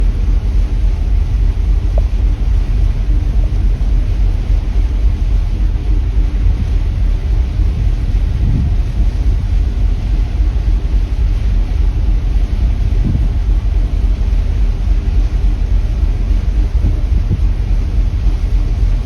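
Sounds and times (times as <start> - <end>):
ship noise: 0.0 - 19.0
wind buffeting microphone: 0.0 - 19.0.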